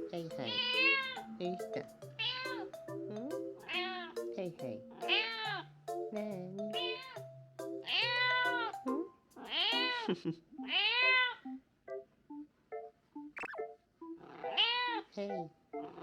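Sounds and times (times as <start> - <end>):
light plucked background music: 0.0 - 16.0
cat meowing: 0.4 - 1.2, 2.2 - 2.6, 3.6 - 4.1, 5.0 - 5.7, 6.8 - 7.2, 7.8 - 8.7, 9.4 - 10.1, 10.7 - 11.4, 14.2 - 15.1.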